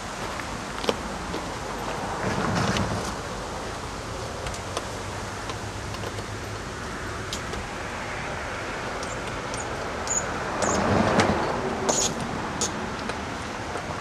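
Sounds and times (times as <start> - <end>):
railcar rumble and hiss: 0.0 - 14.0.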